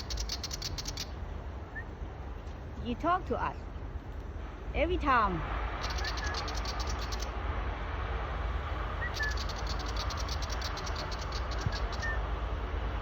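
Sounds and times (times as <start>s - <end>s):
bird rattling scold chatter: 0.0s - 1.2s, 5.8s - 7.4s, 9.0s - 12.2s
bird chirps: 0.0s - 2.0s, 5.8s - 7.4s, 9.0s - 12.3s.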